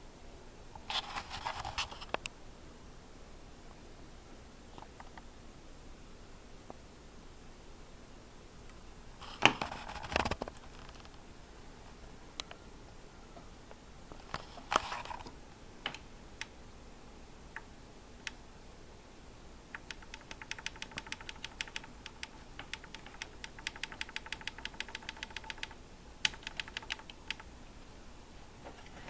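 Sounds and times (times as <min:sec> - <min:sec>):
faint steady whine: 0:00.0 - 0:29.0
keyboard keys clicking: 0:19.7 - 0:27.5.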